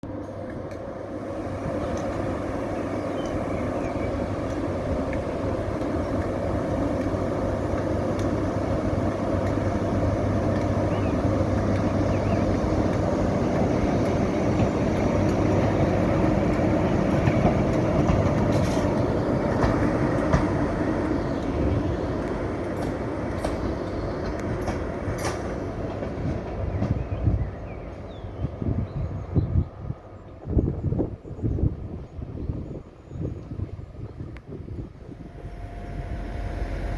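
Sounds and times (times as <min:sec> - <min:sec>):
electric locomotive humming past: 0:00.0 - 0:36.9
wheels clicking over rail joints: 0:00.1 - 0:28.2.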